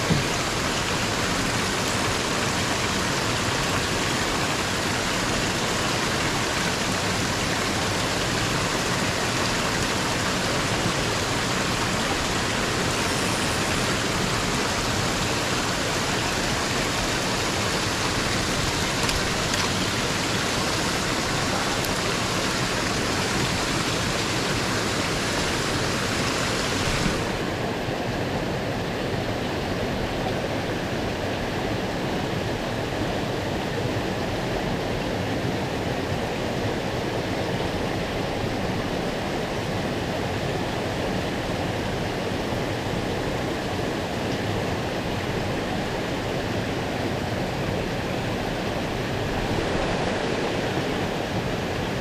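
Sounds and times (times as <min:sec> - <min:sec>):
stream water rushing: 0:00.0 - 0:52.0.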